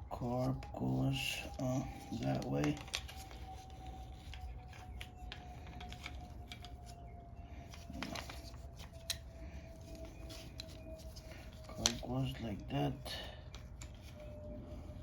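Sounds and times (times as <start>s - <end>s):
faint steady hum: 0.0s - 15.0s
small parts clicking and knocking: 2.1s - 7.0s.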